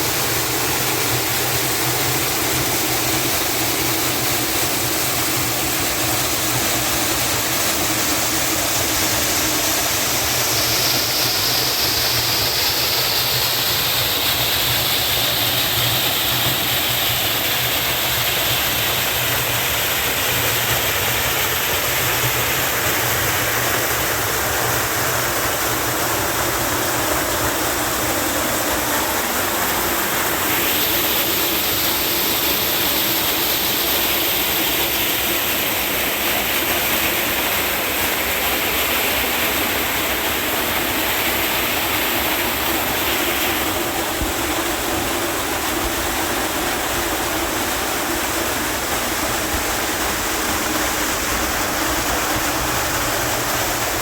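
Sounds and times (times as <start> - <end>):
water rushing: 0.0 - 54.0
high hiss: 21.3 - 54.0.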